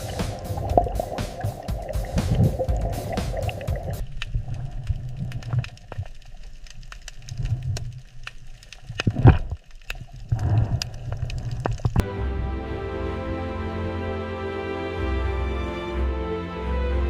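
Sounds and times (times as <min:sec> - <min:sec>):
music: 0:00.0 - 0:04.0, 0:12.0 - 0:17.0
loud crack: 0:00.0 - 0:04.1
low rumbling wash: 0:00.0 - 0:06.2
crackling clicks: 0:00.0 - 0:12.0.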